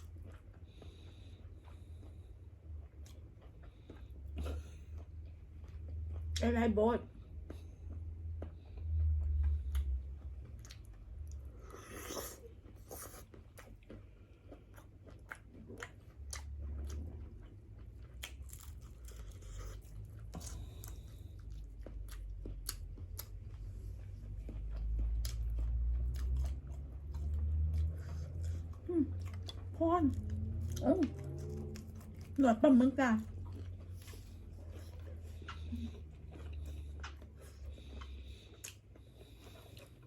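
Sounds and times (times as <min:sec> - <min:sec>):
person chewing crunchy seafood: 0:00.0 - 0:06.4, 0:07.4 - 0:32.4, 0:33.3 - 0:40.0
low rumble: 0:16.3 - 0:40.0.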